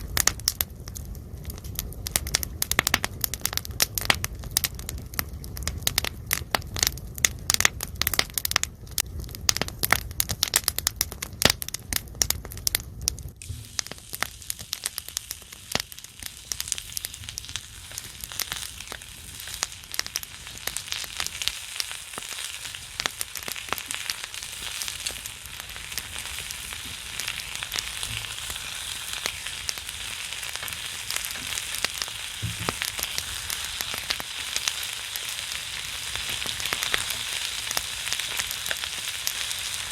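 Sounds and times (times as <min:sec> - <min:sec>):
wood fire crackling and popping: 0:00.0 - 0:39.9
fat sizzling on hot griddle: 0:13.4 - 0:39.9.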